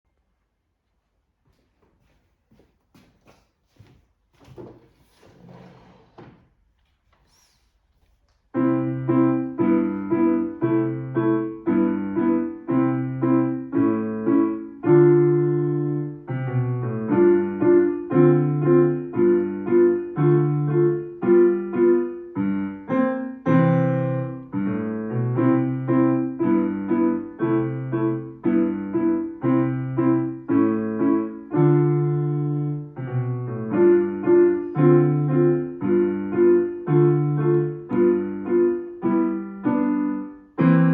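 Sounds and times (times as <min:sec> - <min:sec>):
solo piano chords: 0:08.5 - 0:40.9.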